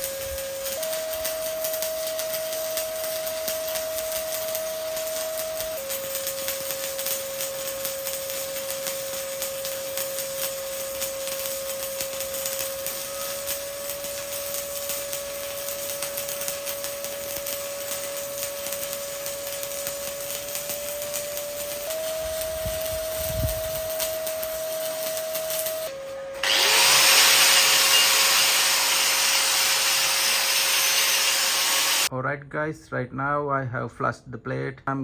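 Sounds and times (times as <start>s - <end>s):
welding arc crackling: 0.0s - 32.1s
mid-pitched whine: 16.7s - 32.1s.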